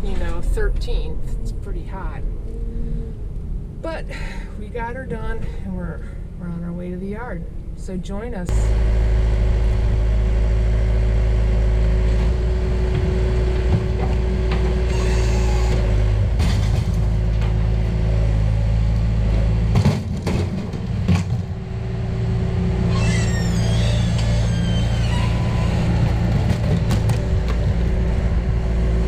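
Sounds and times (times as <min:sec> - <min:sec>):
van engine and road noise: 0:00.0 - 0:29.0.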